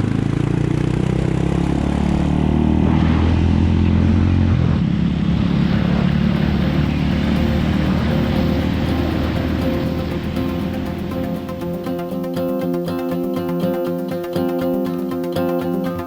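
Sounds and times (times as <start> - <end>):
road and wind noise: 0.0 - 11.8
motorcycle engine running: 0.0 - 14.8.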